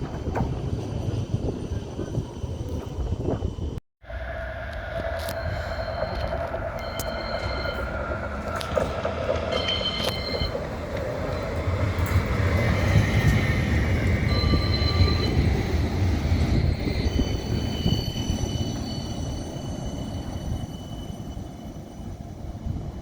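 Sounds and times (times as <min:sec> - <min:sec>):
tram rolling rumble: 0:00.0 - 0:23.0
high-pitched wheel squeal: 0:04.2 - 0:08.7, 0:14.2 - 0:21.9.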